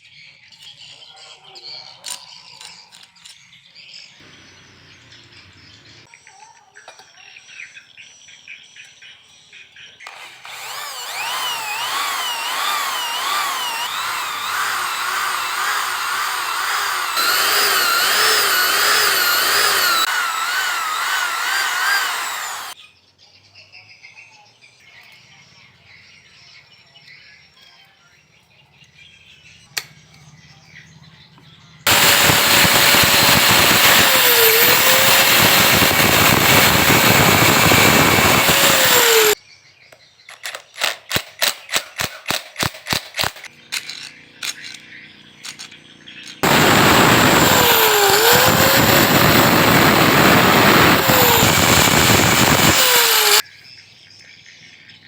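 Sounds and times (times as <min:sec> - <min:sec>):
power tool running: 0:10.1 - 0:22.8, 0:31.9 - 0:39.4, 0:46.4 - 0:53.4.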